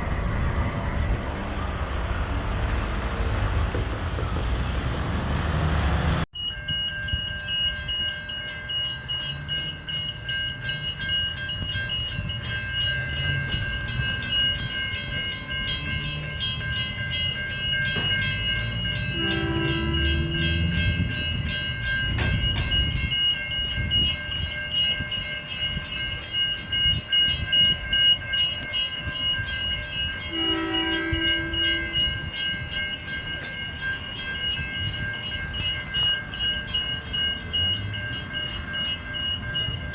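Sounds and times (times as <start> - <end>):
train rumbling past: 0.0 - 39.9
level crossing bells ringing: 5.6 - 39.9
train horn blasts: 19.0 - 21.0, 30.2 - 32.3.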